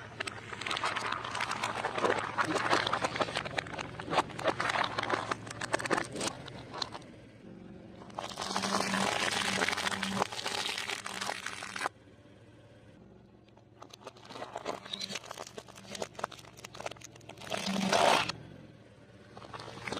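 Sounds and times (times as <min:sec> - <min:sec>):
fried food crunching: 0:00.0 - 0:07.0, 0:08.0 - 0:11.9, 0:13.8 - 0:18.3.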